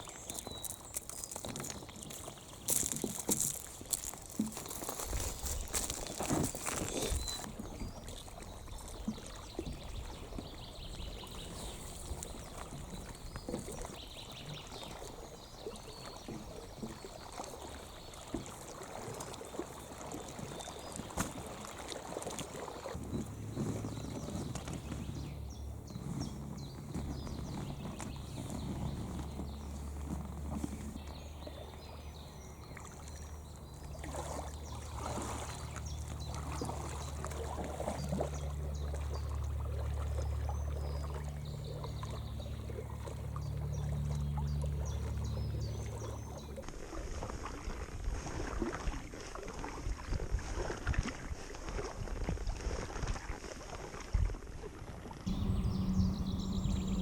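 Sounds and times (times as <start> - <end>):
paddle splashing: 0.0 - 54.4, 55.0 - 57.0
steady low rumble: 55.3 - 57.0.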